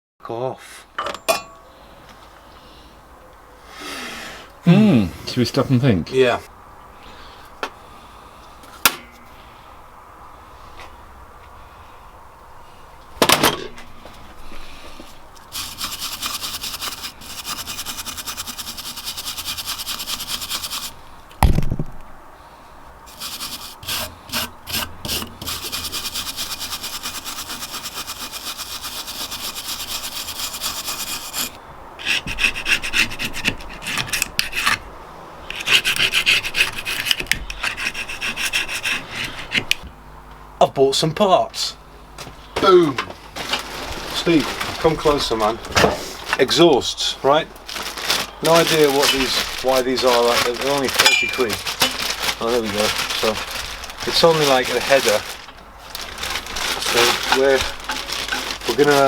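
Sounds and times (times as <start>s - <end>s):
scraping and rubbing on a surface: 15.4s - 21.0s, 23.1s - 34.8s, 35.5s - 39.8s, 48.4s - 59.0s.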